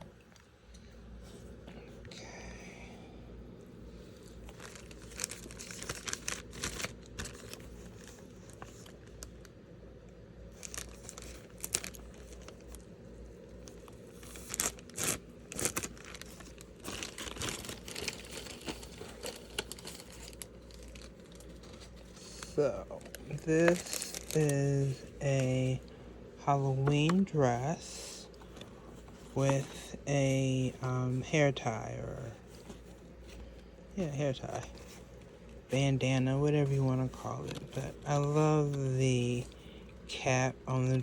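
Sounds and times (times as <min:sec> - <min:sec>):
packaging crinkling and tearing: 0:04.2 - 0:09.5, 0:10.5 - 0:25.9.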